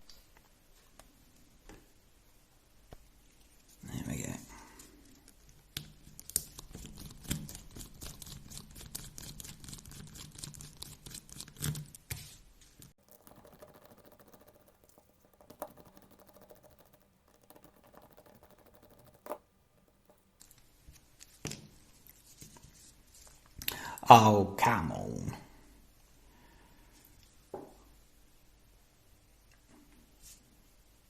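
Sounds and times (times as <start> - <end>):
small plastic parts clicking and rattling: 12.8 - 20.6.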